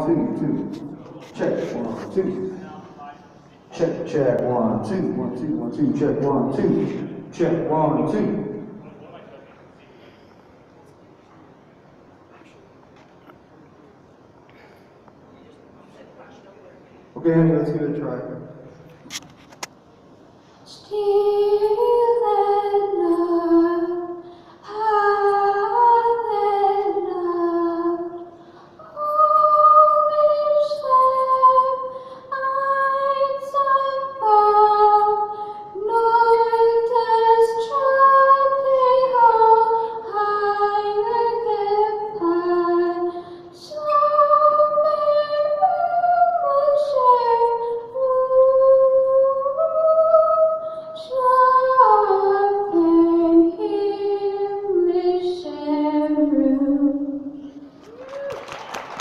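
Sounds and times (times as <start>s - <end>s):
woman singing unaccompanied: 20.7s - 57.4s.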